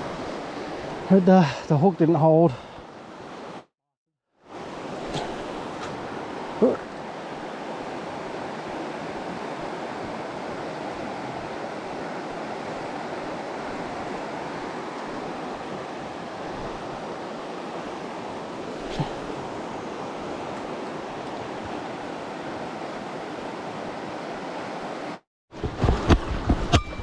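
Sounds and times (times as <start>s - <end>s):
river rushing in flood: 4.5s - 25.2s.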